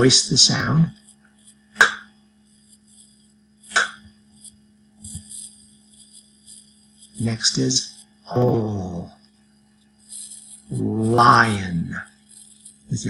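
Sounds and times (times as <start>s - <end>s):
faint steady hum: 0.0s - 13.0s
man pronouncing k sound: 7.2s - 9.2s, 10.7s - 12.0s.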